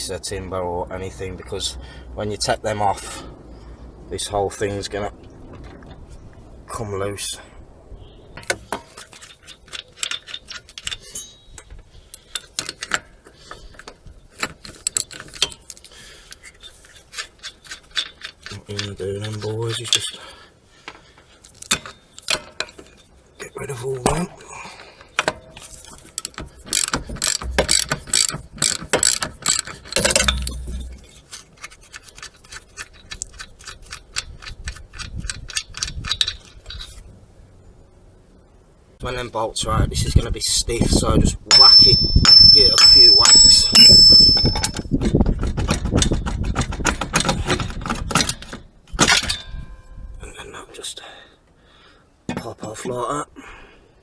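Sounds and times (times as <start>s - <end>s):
metal clinks: 10.0s - 11.7s, 26.7s - 31.2s, 41.5s - 44.9s
ratchet wrench clicking: 26.2s - 31.0s.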